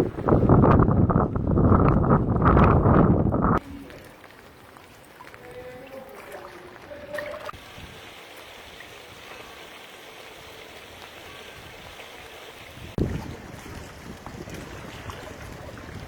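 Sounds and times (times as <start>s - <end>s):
floodwater rushing: 3.6s - 16.0s.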